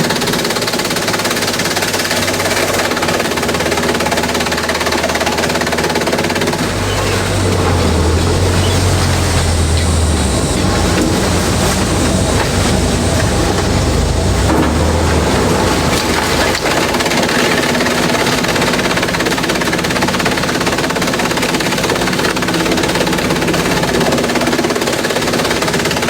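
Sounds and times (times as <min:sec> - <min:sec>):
shredder machine clattering: 0:00.0 - 0:26.0.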